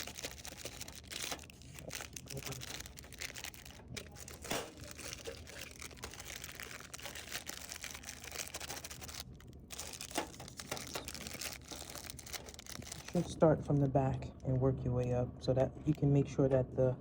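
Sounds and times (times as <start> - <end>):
plastic snack bags crinkling: 0.0 - 13.4.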